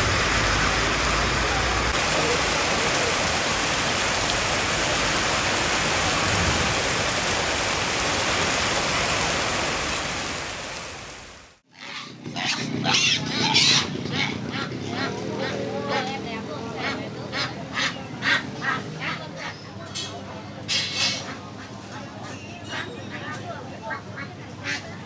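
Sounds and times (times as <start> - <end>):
heavy rain hiss: 0.0 - 11.6
ducks quacking: 16.8 - 19.6, 22.7 - 25.0.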